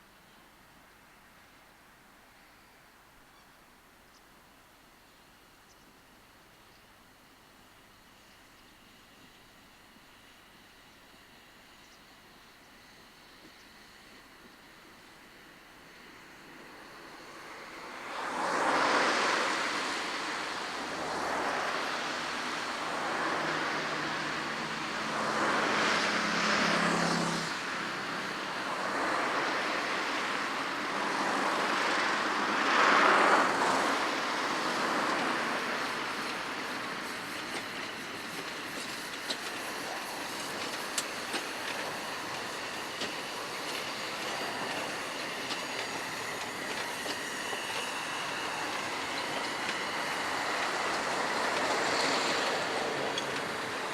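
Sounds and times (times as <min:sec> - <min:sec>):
steam train passing: 0:04.4 - 0:53.9
train wheels clicking over rail joints: 0:27.8 - 0:53.9.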